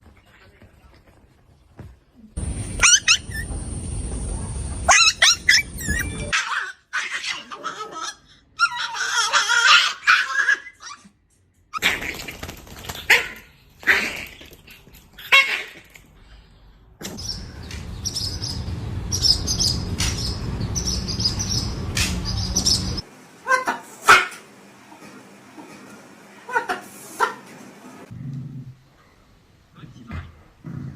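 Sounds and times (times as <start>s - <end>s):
steady low rumble: 2.4s - 6.3s, 17.2s - 23.0s
parrots squawking: 2.5s - 3.6s, 4.8s - 11.0s, 17.2s - 24.5s, 26.4s - 27.5s
dog barking: 2.8s - 3.5s, 23.5s - 24.4s
high chirps: 4.7s - 6.3s.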